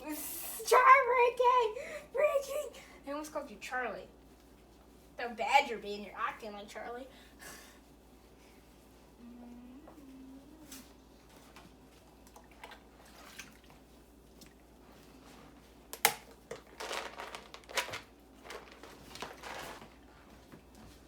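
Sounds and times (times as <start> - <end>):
bath water splashing: 11.9 - 14.9.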